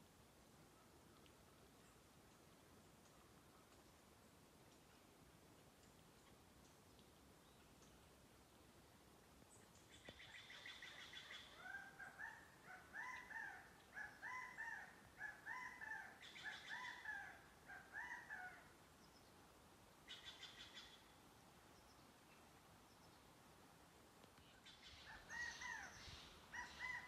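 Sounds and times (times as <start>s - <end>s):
faint birds calling: 9.5s - 19.4s, 20.0s - 23.3s, 24.3s - 27.0s.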